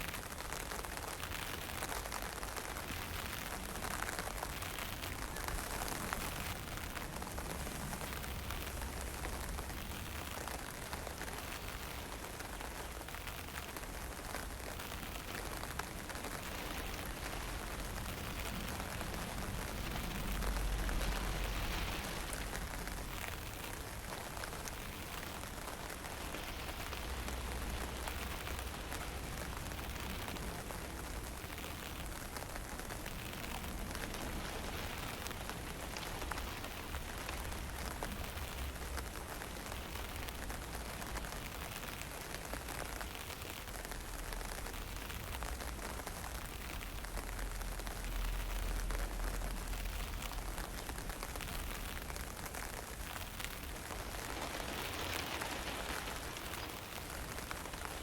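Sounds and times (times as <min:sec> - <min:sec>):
wind blowing in gusts: 0:49.4 - 0:58.0.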